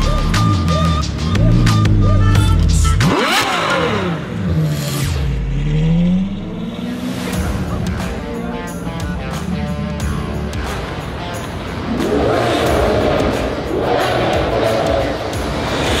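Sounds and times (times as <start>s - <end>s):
car engine revving hard: 3.0s - 7.6s, 11.5s - 16.0s.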